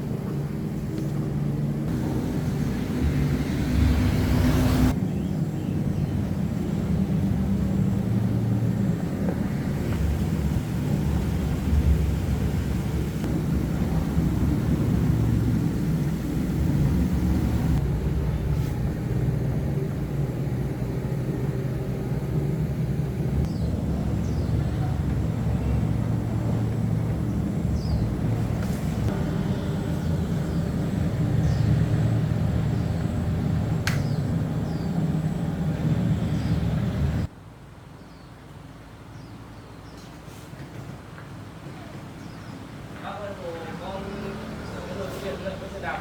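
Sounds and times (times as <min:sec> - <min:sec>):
vehicle engine running and revving: 0:01.5 - 0:05.0, 0:05.9 - 0:37.3.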